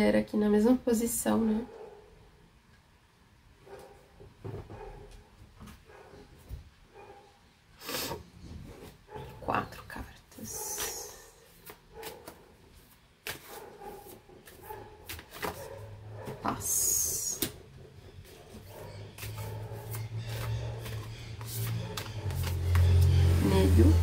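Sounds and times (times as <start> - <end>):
card stock rustling: 10.8 - 15.8, 18.2 - 23.4
cards tapping and clicking: 14.4 - 15.6, 19.2 - 23.1.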